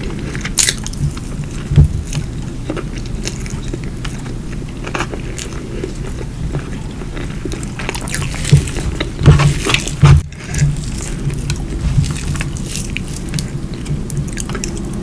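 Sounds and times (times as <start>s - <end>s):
wet chewing and mouth sounds: 0.0s - 15.0s.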